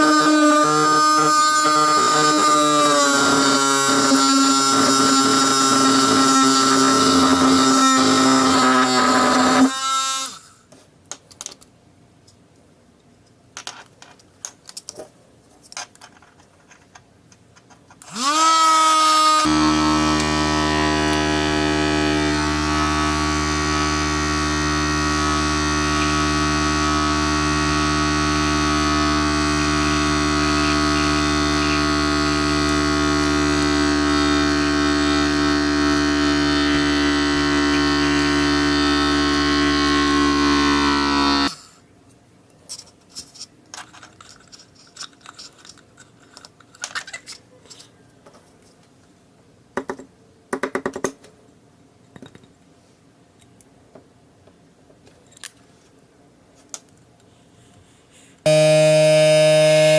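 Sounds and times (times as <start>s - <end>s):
small electric motor whining: 0.0s - 10.6s, 18.0s - 41.6s, 58.4s - 59.9s.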